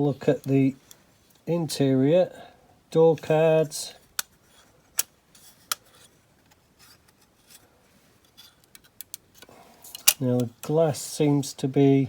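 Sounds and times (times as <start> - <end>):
sharp clicks of model car parts: 4.1 - 7.6, 8.3 - 10.7.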